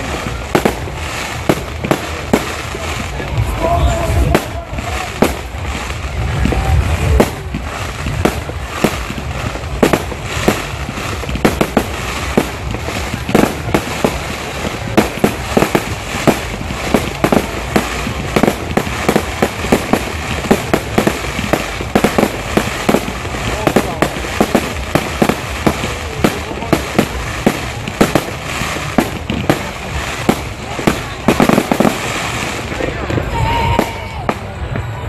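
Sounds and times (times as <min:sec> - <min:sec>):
steady hiss: 0:00.0 - 0:34.6
fireworks bangs and crackles: 0:00.0 - 0:35.0.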